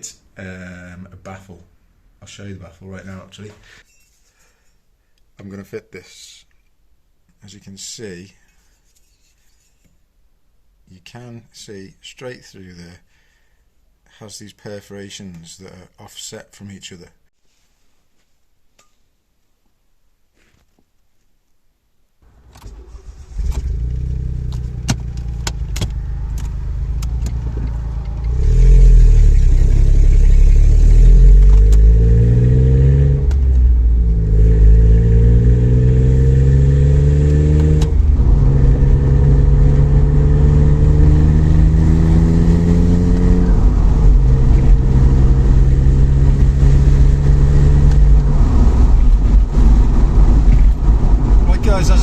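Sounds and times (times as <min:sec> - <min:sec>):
car engine accelerating: 0:22.3 - 0:52.0.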